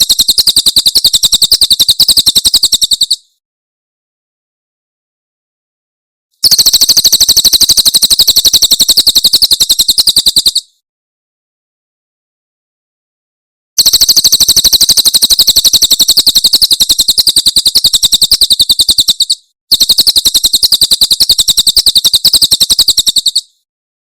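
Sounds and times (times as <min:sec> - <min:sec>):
bird singing rapid high trill: 0:00.0 - 0:03.3, 0:06.4 - 0:10.8, 0:13.8 - 0:23.6.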